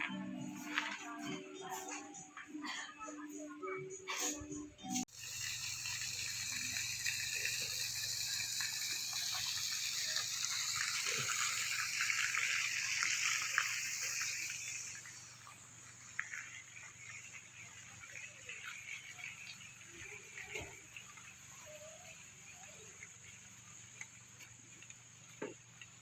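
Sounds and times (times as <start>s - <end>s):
running water rushing: 5.1s - 25.9s.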